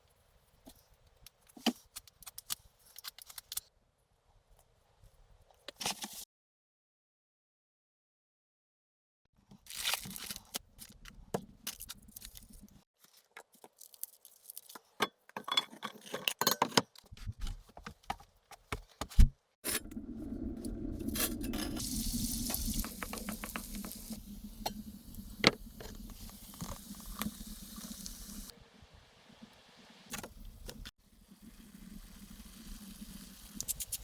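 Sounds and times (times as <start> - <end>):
cookware and utensils clinking: 14.9 - 17.0
sizzling with crackles: 21.0 - 28.6, 29.3 - 34.0.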